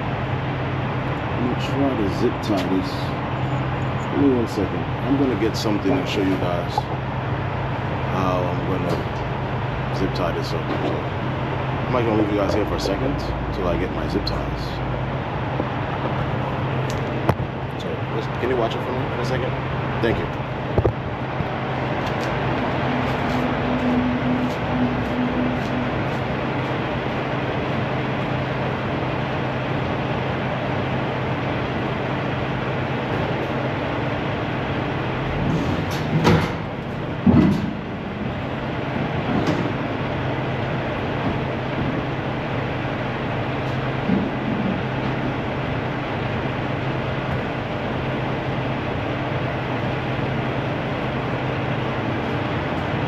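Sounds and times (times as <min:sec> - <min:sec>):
diesel engine idling: 0:00.0 - 0:53.0
clunks and rattles: 0:10.6 - 0:11.2, 0:35.4 - 0:40.2, 0:43.6 - 0:45.4.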